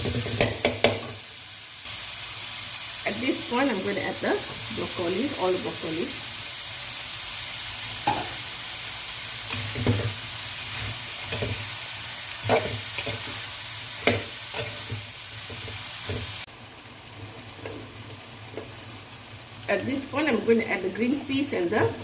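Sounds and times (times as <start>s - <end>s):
vegetables sizzling in a pan: 0.0s - 22.0s
spatula scraping a pan: 9.5s - 11.8s, 12.4s - 16.4s.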